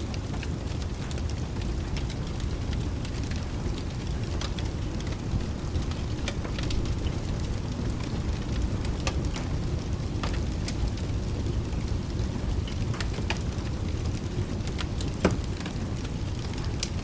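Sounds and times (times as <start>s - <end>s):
low rumble of rain: 0.0s - 17.0s
wood fire crackling and popping: 0.0s - 17.0s.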